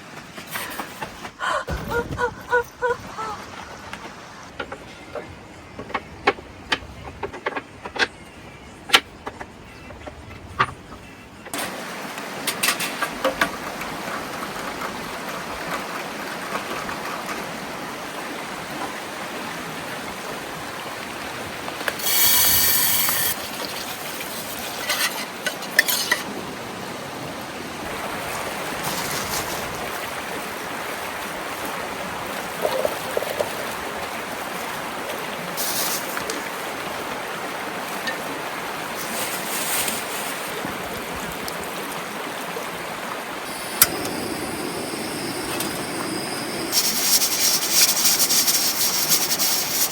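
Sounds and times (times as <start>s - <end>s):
mountain stream rushing: 11.6s - 49.9s
brief buzzy rasp: 22.0s - 23.4s.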